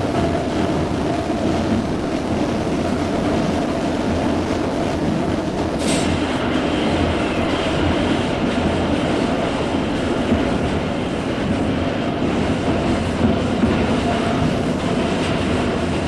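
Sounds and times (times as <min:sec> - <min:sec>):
train rumbling along track: 0:00.0 - 0:16.0.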